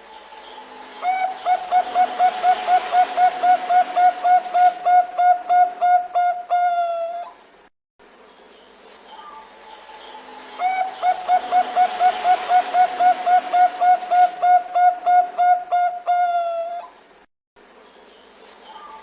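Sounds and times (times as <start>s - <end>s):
steady background hiss: 0.0s - 19.0s
dove cooing: 1.0s - 7.4s, 10.6s - 17.0s.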